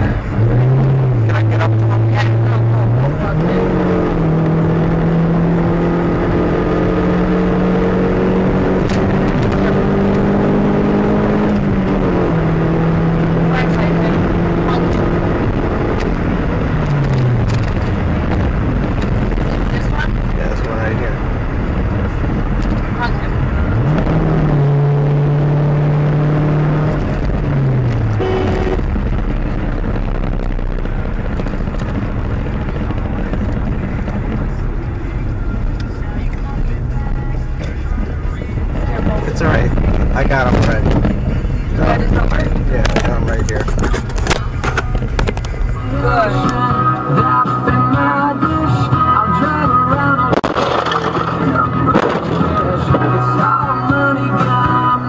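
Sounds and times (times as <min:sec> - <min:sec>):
car engine hum: 0:00.0 - 0:55.0
low droning tone: 0:00.0 - 0:55.0
road noise: 0:00.0 - 0:55.0
short higher tone: 0:28.2 - 0:28.9.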